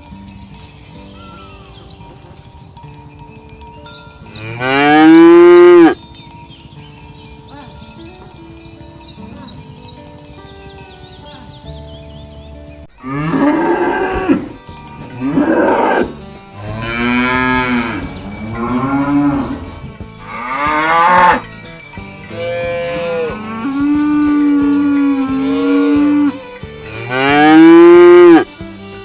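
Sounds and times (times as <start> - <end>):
cattle mooing: 13.0 - 21.4, 27.0 - 28.5.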